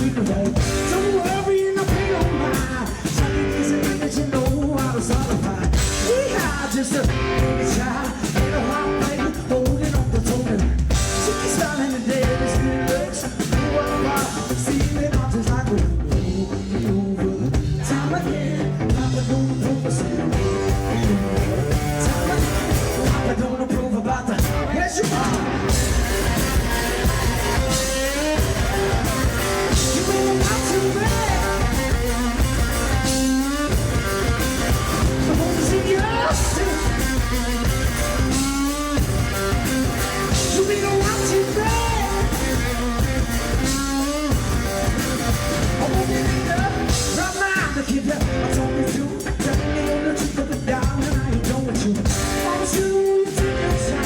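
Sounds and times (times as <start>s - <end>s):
man singing: 0.0s - 44.5s, 45.2s - 54.0s
drum kit: 0.0s - 54.0s
electric guitar: 0.0s - 54.0s.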